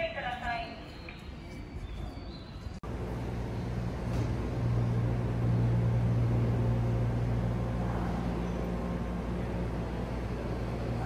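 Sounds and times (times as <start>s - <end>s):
train equipment humming: 2.8s - 11.0s.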